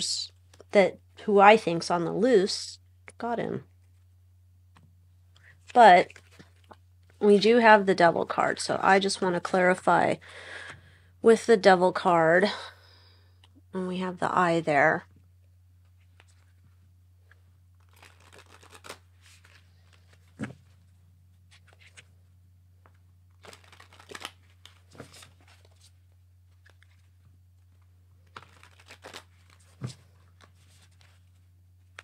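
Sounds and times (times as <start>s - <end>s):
cards shuffling: 5.4s - 6.8s, 17.2s - 22.1s, 22.8s - 32.0s.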